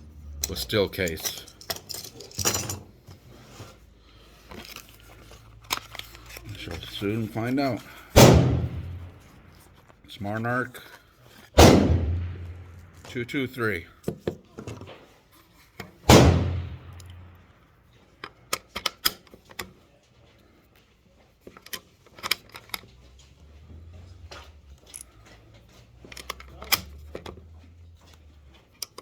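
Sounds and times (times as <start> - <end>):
loud gunshot: 8.2 - 9.2, 11.6 - 12.8, 16.1 - 17.0
cartridges clicking into magazine: 15.8 - 17.2.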